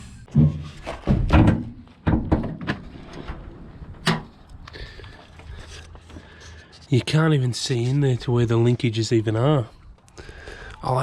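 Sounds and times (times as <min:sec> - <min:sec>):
car bonnet thunks and clunks: 0:00.3 - 0:04.4.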